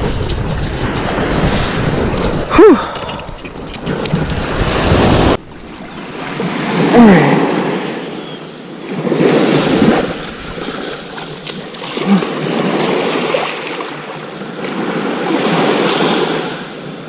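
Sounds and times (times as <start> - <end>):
waves breaking on beach: 0.0 - 17.0
wind buffeting microphone: 0.0 - 17.0.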